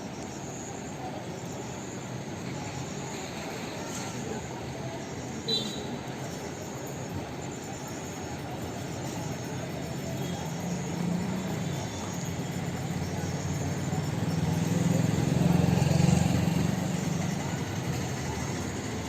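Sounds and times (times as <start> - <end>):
vehicle engine humming: 8.9 - 19.0.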